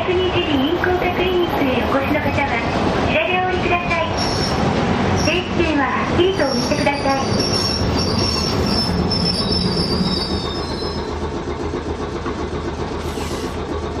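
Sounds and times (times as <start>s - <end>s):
tram rolling with steady rumble: 0.0s - 14.0s
high wheel squeal: 4.1s - 4.6s, 6.4s - 11.2s.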